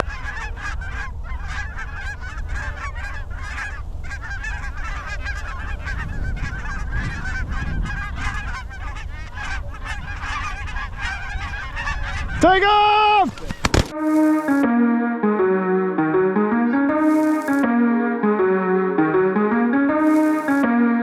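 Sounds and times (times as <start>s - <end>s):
geese honking: 13.3s - 14.6s, 17.0s - 17.6s, 20.0s - 20.6s.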